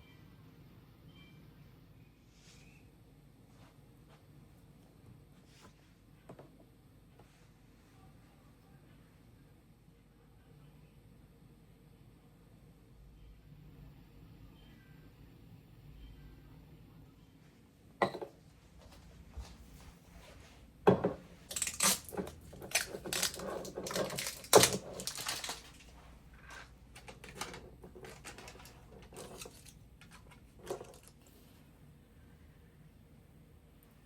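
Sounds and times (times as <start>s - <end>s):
dishes and utensils clattering: 20.9s - 31.1s.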